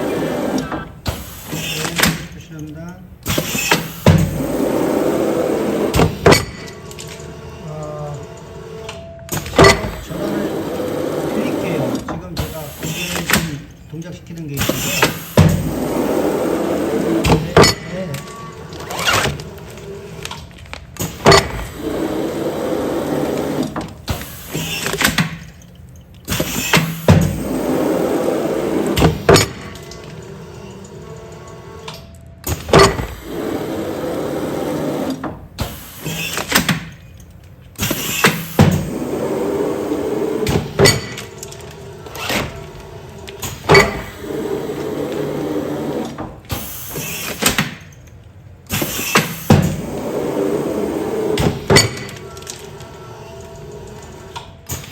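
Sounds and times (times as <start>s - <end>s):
sealing machine hum: 0.0s - 54.9s
machine knocks and clicks: 0.6s - 4.6s, 9.3s - 16.1s, 16.7s - 19.5s
machine sharp clunks: 9.3s - 11.2s.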